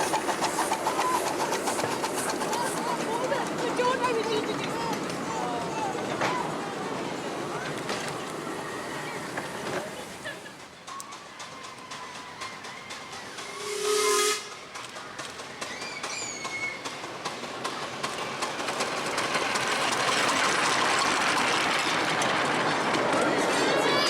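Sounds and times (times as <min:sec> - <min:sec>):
steam hiss: 0:00.0 - 0:03.6, 0:08.0 - 0:22.8
steam locomotive whistle blast: 0:13.2 - 0:14.6.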